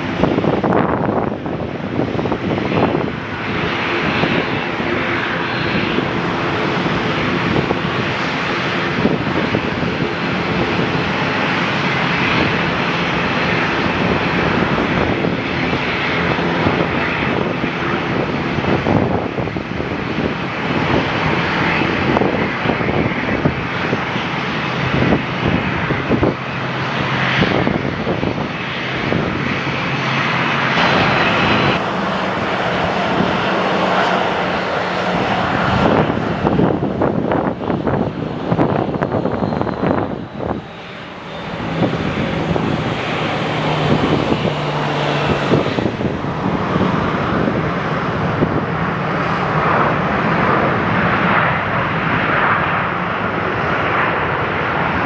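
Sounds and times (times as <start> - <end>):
airliner engines rushing: 0.0 - 55.0.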